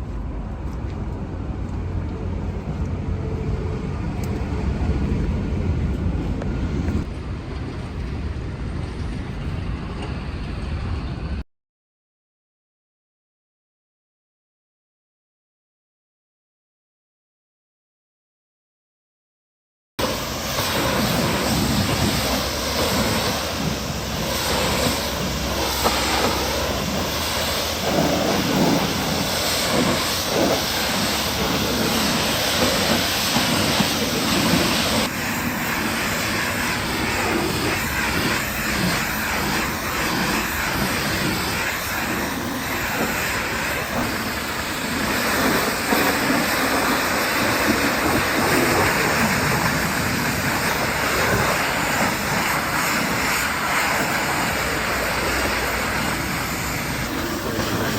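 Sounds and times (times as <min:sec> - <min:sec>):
pressure washer spraying: 0:20.0 - 0:57.9.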